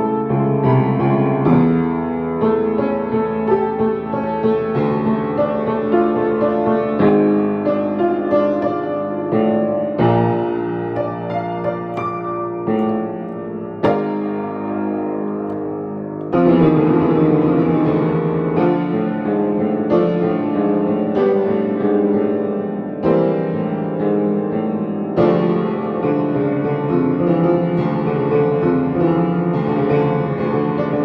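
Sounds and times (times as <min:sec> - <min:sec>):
piano chords: 0:00.0 - 0:31.0.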